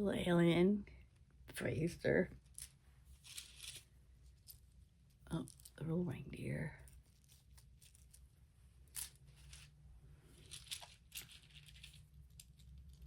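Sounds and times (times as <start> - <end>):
plastic toys clicking and rustling: 2.5 - 4.6, 10.4 - 13.0.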